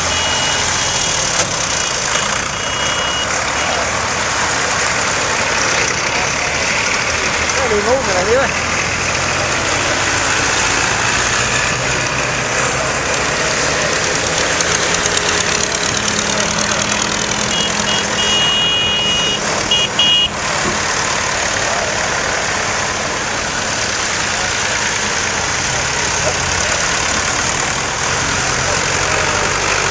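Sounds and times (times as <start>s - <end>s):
high-pitched beeping: 0.0s - 1.3s, 1.9s - 3.8s, 17.5s - 20.3s
tractor engines idling: 0.0s - 29.9s.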